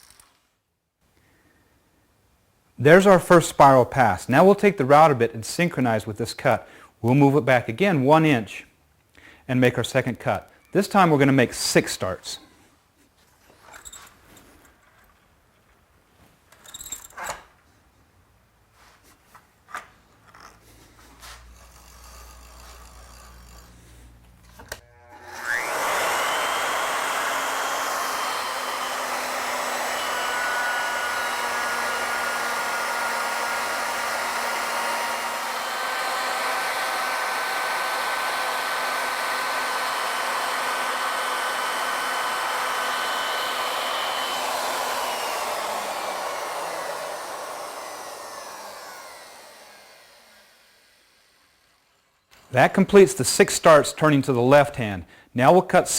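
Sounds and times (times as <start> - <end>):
wood router whining: 20.3 - 53.0.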